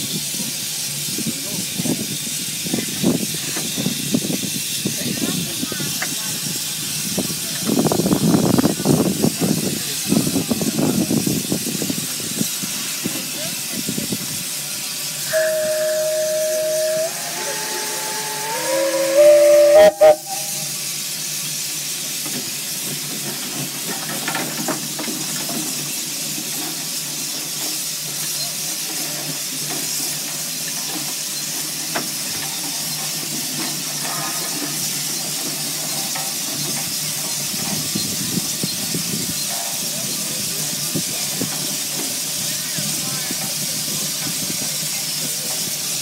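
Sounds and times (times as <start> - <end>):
steam hissing: 0.0 - 46.0
steam whistle blowing chord: 15.3 - 20.8.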